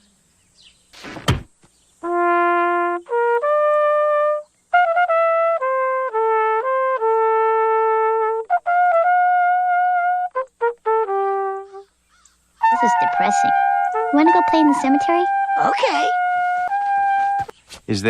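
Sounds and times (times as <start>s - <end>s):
solo trumpet melody: 2.0s - 12.0s, 12.6s - 17.5s.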